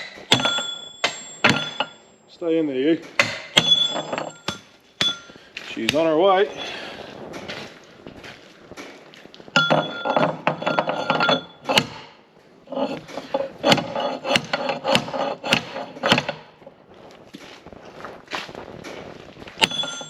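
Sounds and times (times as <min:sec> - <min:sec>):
hammer ringing on steel: 0:00.0 - 0:02.4, 0:03.2 - 0:05.4, 0:19.6 - 0:20.0.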